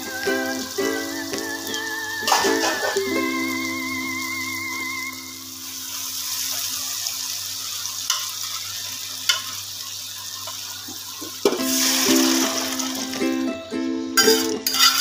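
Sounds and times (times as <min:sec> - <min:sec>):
masala sizzling in oil: 0:00.0 - 0:15.0
spatula stirring in a pot: 0:14.3 - 0:15.0.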